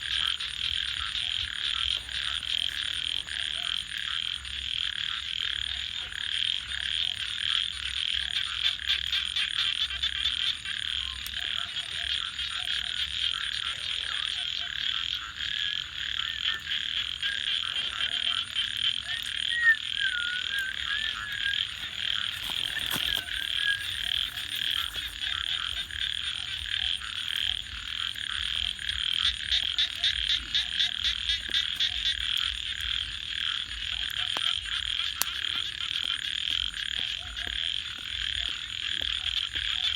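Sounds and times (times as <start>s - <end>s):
frogs calling: 0.0s - 39.9s
wood fire crackling: 20.5s - 36.8s.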